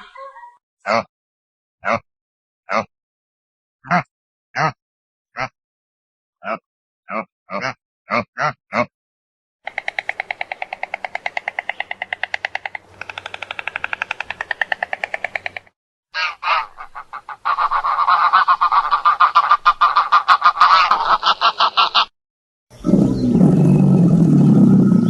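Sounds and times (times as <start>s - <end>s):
waterfowl calling rapidly: 9.7s - 22.1s.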